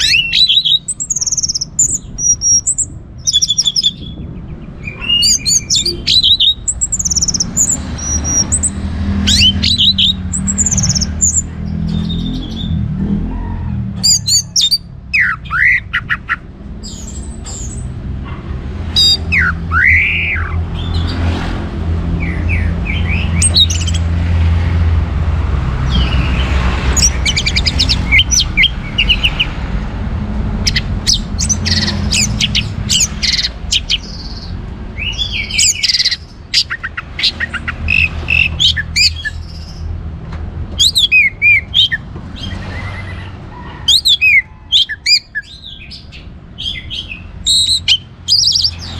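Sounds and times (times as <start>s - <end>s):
bird singing whistled phrases: 0.0s - 4.2s, 4.8s - 12.8s, 14.0s - 16.4s, 19.0s - 21.0s, 30.7s - 39.6s, 40.8s - 42.5s.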